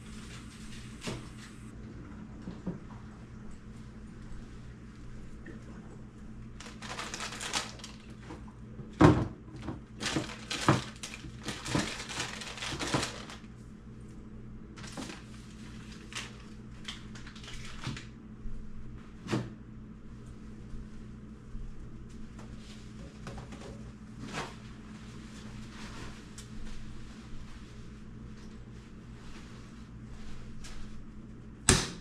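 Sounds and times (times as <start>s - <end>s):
packaging crinkling: 6.6s - 8.3s, 9.8s - 13.5s, 14.8s - 18.1s
plastic bins knocking and clattering: 9.0s - 13.4s.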